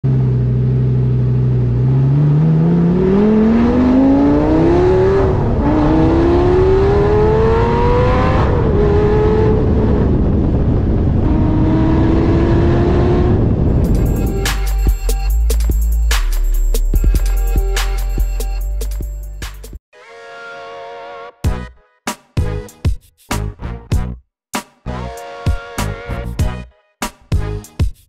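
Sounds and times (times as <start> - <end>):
car engine accelerating hard: 0.1 - 14.4.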